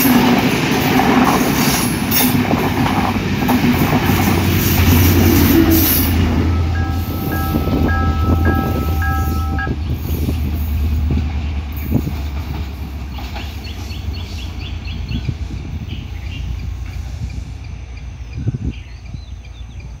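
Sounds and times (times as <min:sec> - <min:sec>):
train engine and wheel rumble: 0:00.0 - 0:20.0
birds chirping: 0:04.6 - 0:10.0.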